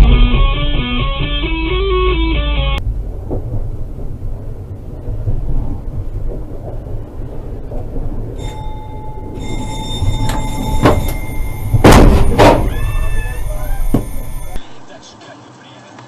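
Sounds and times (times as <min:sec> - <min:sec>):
vehicle and road rumble: 0:00.0 - 0:15.0
steady high tone: 0:08.4 - 0:15.0.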